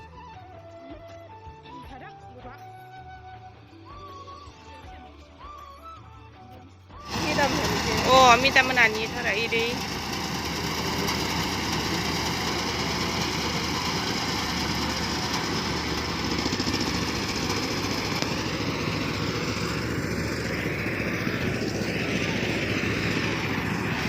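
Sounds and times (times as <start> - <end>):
tractor engine chugging: 7.0 - 24.0.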